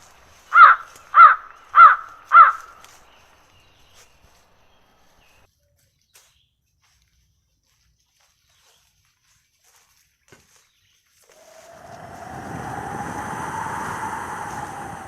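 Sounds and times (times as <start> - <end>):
crow cawing: 0.6 - 2.7.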